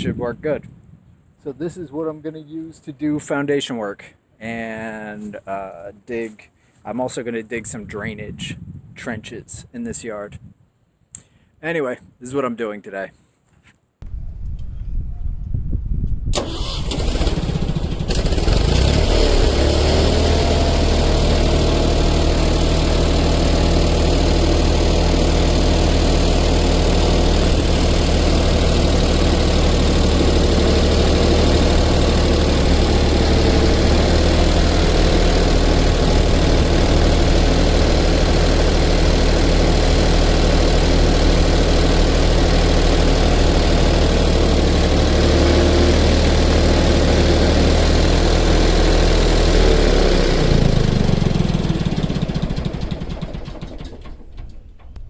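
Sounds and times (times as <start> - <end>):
tractor engine cranking and idling: 16.3 - 55.0.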